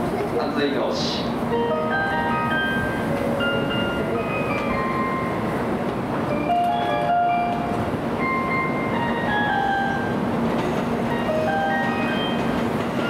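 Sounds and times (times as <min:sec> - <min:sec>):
busy station noise: 0:00.0 - 0:13.0
train low hum: 0:00.0 - 0:13.0.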